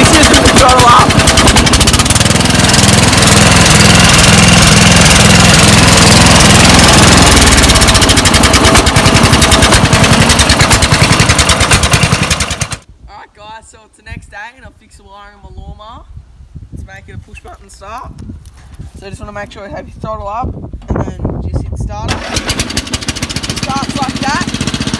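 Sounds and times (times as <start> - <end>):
lawn mower engine at full throttle: 0.0 - 12.9, 22.1 - 24.9.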